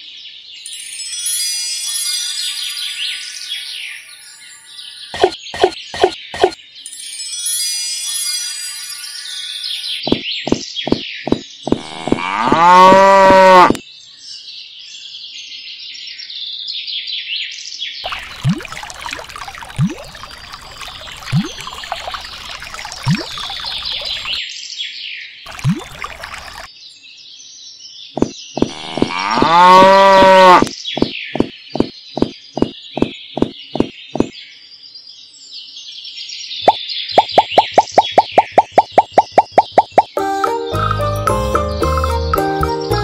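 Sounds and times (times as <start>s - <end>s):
birdsong chirping: 3.8s - 6.9s, 9.8s - 14.5s, 18.0s - 24.5s, 25.5s - 43.0s
gulping drinking sounds: 11.7s - 13.8s, 28.6s - 31.9s
cow mooing: 11.8s - 13.8s, 28.7s - 30.7s.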